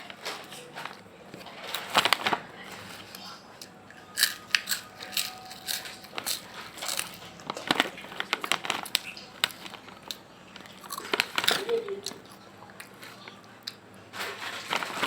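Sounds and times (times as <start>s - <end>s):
crisp snack being crunched: 4.2s - 15.0s.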